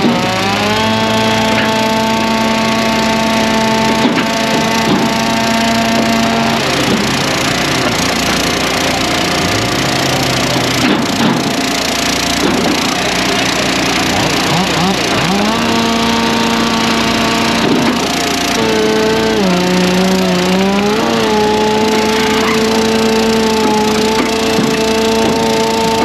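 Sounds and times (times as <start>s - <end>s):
small gasoline engines running: 0.0s - 26.0s.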